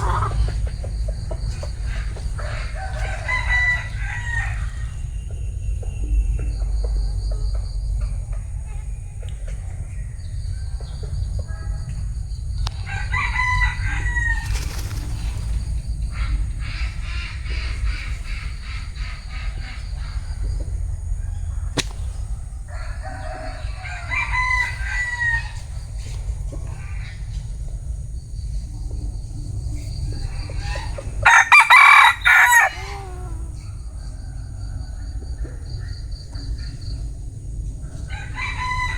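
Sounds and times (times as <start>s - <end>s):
roosters crowing: 0.0s - 0.8s, 1.9s - 5.1s, 12.7s - 15.0s, 22.3s - 25.8s, 30.3s - 34.7s, 38.0s - 38.9s
steady low rumble: 4.6s - 38.9s.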